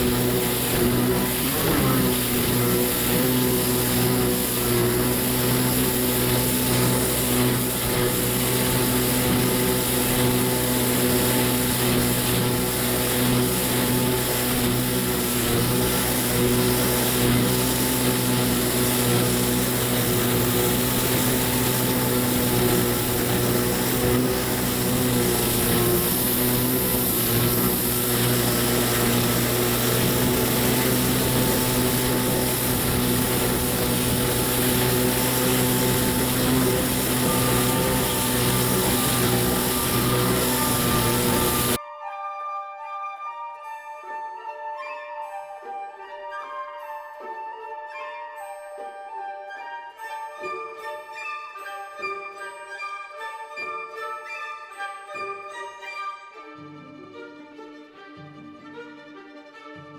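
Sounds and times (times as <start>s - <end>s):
jet ski engine running: 0.0s - 41.8s
steady rushing noise: 0.0s - 41.8s.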